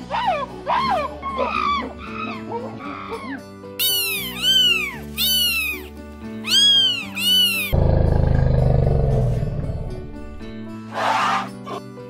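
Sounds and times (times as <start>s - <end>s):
background music: 0.0s - 12.0s
monkey high-pitched calls: 0.7s - 7.8s
loud rough low sound: 7.8s - 10.7s.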